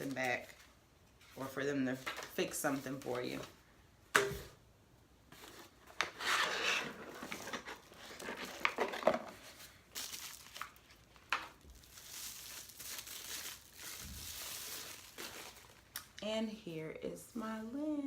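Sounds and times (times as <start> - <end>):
packaging crinkling: 7.2 - 16.2.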